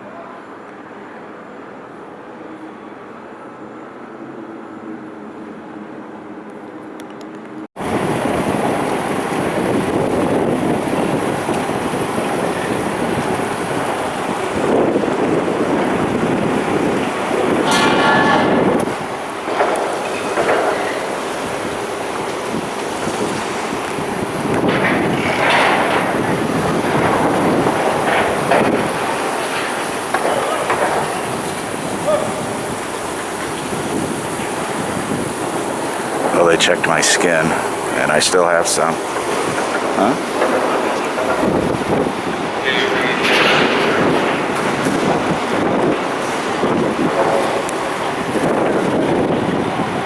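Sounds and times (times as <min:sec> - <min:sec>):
city street noise: 0:00.0 - 0:50.0
steady rushing noise: 0:07.7 - 0:50.0
wind buffeting microphone: 0:07.8 - 0:50.0.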